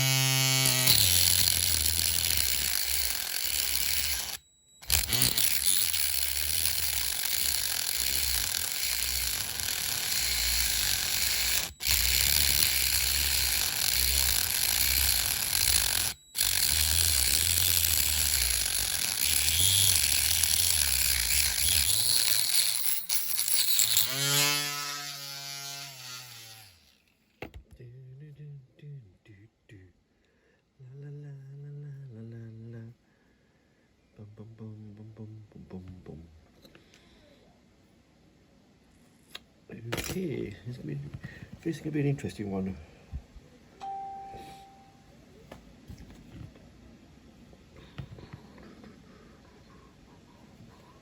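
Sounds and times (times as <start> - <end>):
small motor spinning: 0.0 - 27.0.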